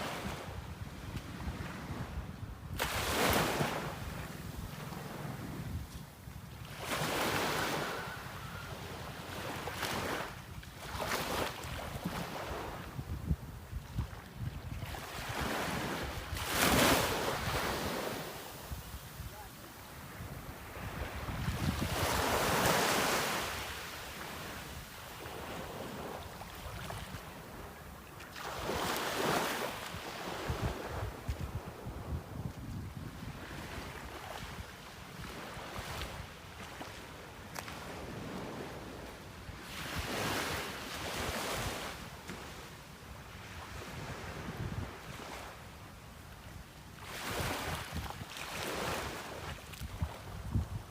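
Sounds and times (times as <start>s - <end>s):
wind rumble on microphone: 0.0s - 28.0s, 28.6s - 41.9s, 43.4s - 45.5s, 46.4s - 50.9s
wind buffeting microphone: 11.3s - 23.8s, 28.6s - 36.3s, 49.4s - 50.9s.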